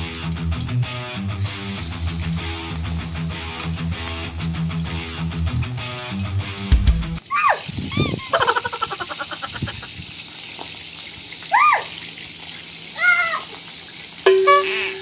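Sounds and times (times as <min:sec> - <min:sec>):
shrimp sizzling in hot oil: 0:01.4 - 0:06.6, 0:07.2 - 0:15.0
whistling chirps: 0:07.9 - 0:08.3.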